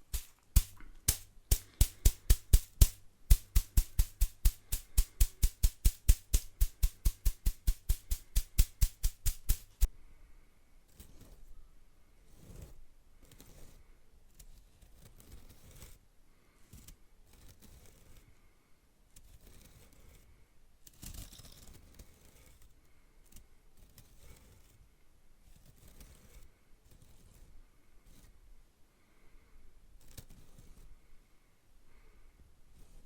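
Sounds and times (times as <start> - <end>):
broom bristles scratching: 0.0 - 9.9.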